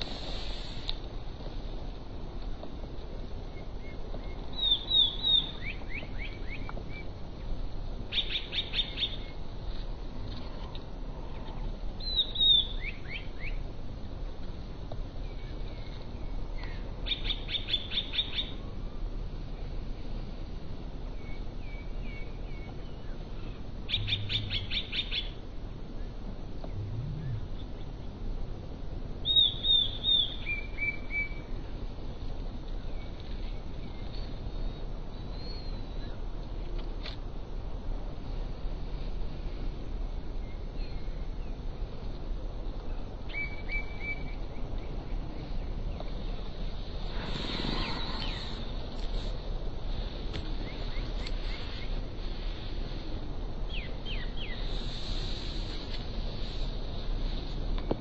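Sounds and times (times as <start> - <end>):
songbird trill: 3.1 - 20.2, 21.0 - 28.1, 29.2 - 37.1, 39.8 - 58.0
soft bird chirps: 3.5 - 7.1, 8.1 - 9.4, 11.3 - 13.6, 15.2 - 18.6, 21.1 - 25.4, 29.2 - 31.5, 32.9 - 36.2, 47.1 - 49.3
low rumble: 26.5 - 28.2.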